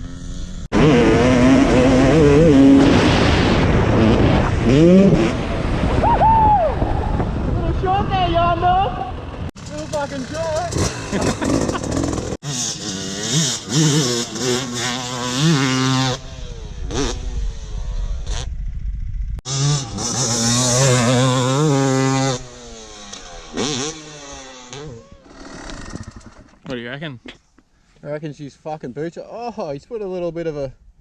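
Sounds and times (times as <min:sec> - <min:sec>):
dirt bike engine revving: 0:00.0 - 0:05.8, 0:09.2 - 0:26.6.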